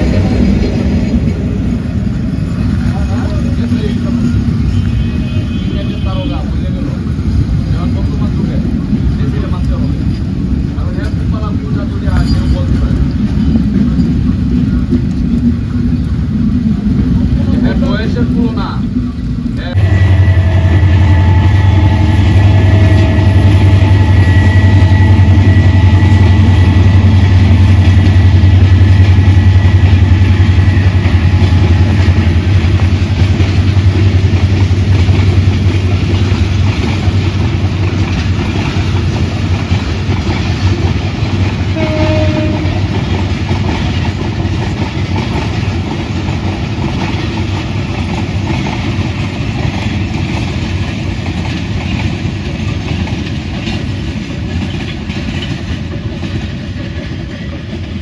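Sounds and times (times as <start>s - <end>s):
train rumbling past: 0.0s - 58.0s
multi-tone train horn: 4.6s - 6.7s, 19.7s - 32.2s, 41.7s - 43.1s.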